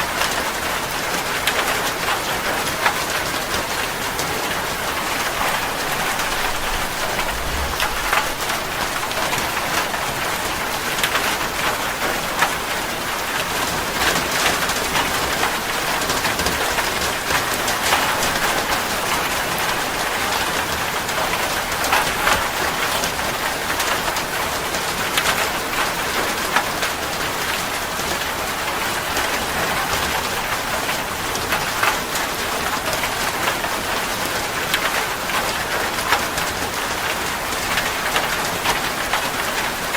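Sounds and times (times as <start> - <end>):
heavy rain falling: 0.0 - 39.9
low rumble: 5.3 - 10.3.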